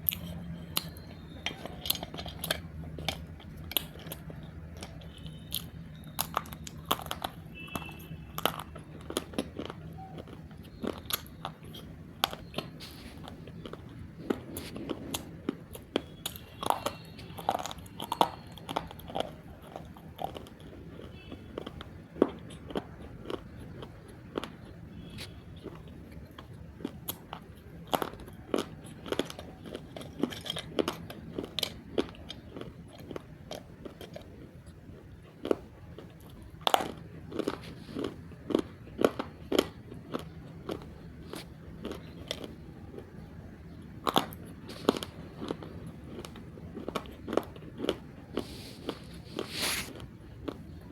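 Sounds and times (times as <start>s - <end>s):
person crunching clay: 44.0s - 50.8s.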